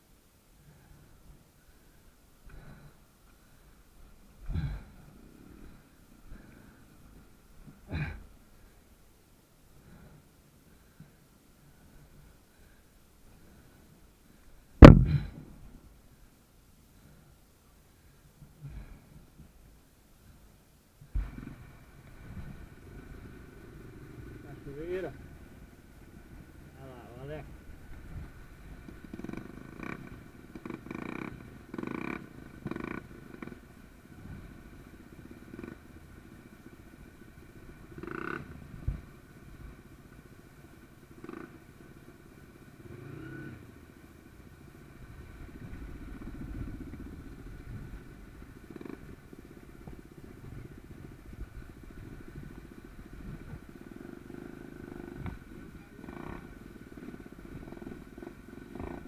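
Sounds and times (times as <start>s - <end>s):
motorcycle engine rumbling: 9.8s - 16.1s, 20.3s - 59.0s.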